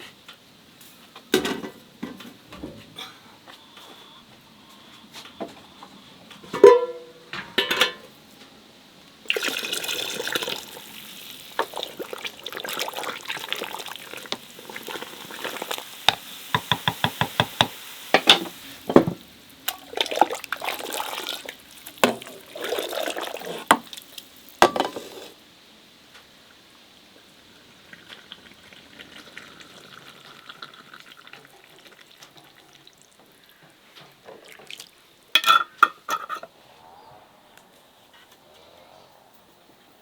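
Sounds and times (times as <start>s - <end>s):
kitchenware clinking: 6.6s - 8.1s, 16.6s - 19.2s, 24.6s - 25.4s, 35.4s - 36.5s
water pouring into a vessel: 9.3s - 15.8s, 19.7s - 25.4s, 27.6s - 33.1s.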